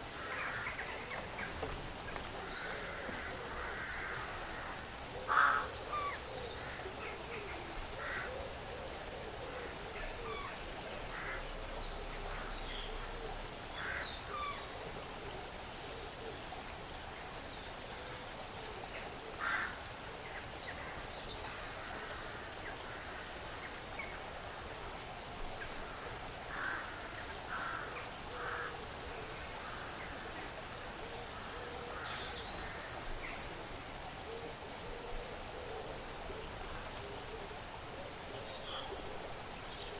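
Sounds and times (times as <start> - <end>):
steady background hiss: 0.0 - 39.9
birds calling: 0.2 - 7.4.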